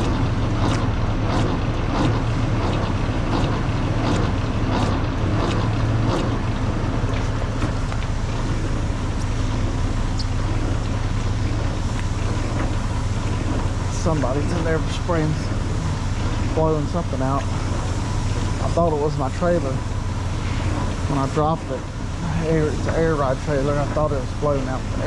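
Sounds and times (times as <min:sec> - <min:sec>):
low steady hum: 0:00.0 - 0:25.0
air hissing: 0:07.2 - 0:25.0.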